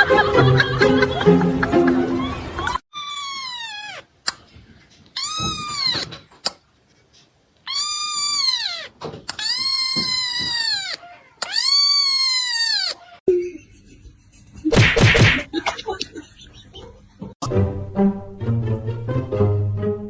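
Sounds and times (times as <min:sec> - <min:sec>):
cat meowing: 0:03.0 - 0:04.1, 0:05.2 - 0:06.2, 0:07.7 - 0:13.2.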